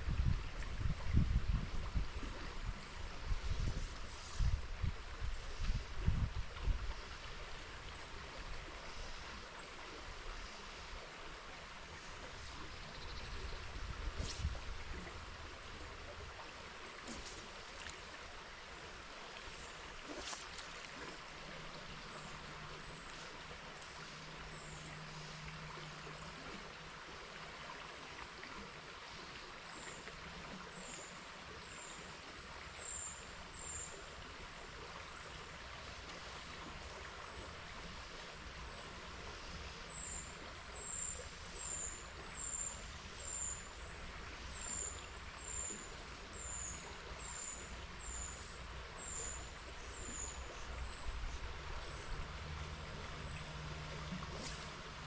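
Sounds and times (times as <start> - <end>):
wind buffeting microphone: 0.0 - 7.0
river water rushing: 7.1 - 29.6, 31.2 - 55.0.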